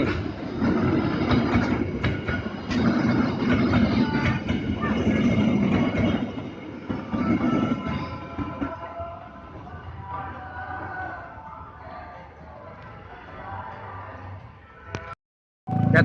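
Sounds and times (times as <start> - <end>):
wheels clacking over rail joints: 0.0 - 9.0
train carriages rumbling past: 0.0 - 13.7.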